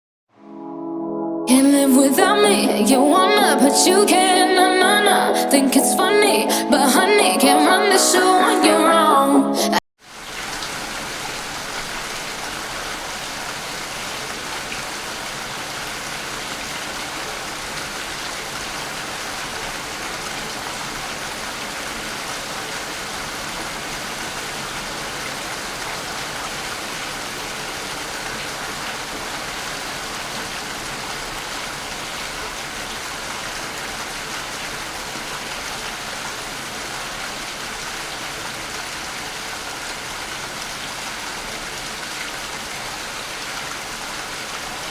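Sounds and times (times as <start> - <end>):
rain falling: 10.1 - 44.9.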